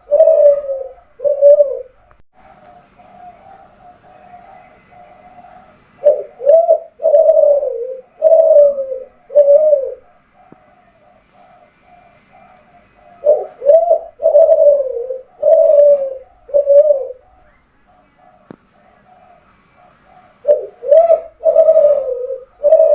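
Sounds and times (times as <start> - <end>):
dove cooing: 0.0 - 22.9
faint steady cooing: 0.0 - 22.9.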